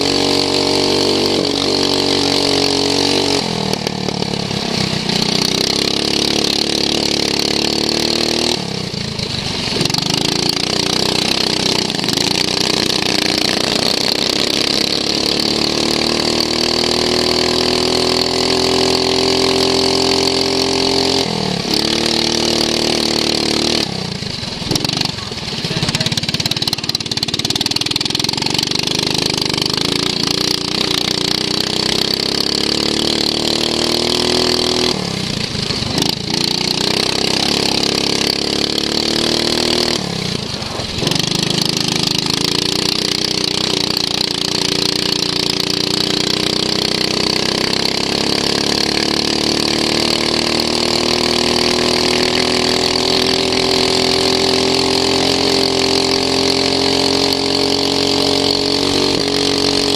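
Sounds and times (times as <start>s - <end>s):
racing lawn mower engine: 0.0s - 59.9s.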